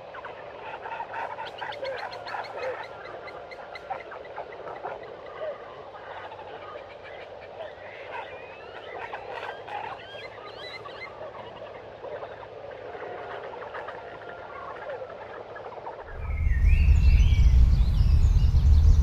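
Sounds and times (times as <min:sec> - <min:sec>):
chorus of bird calls: 0:00.0 - 0:19.0
whistled glides: 0:16.1 - 0:19.0.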